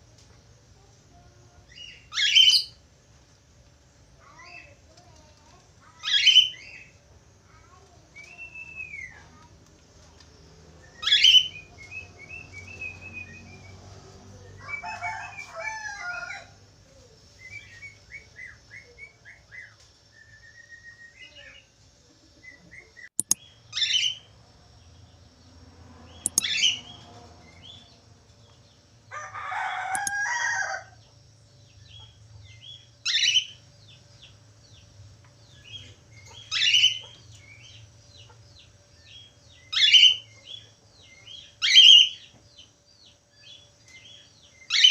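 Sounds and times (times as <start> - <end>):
sharp clicks: 23.2 - 23.4, 26.2 - 26.6, 29.9 - 30.2.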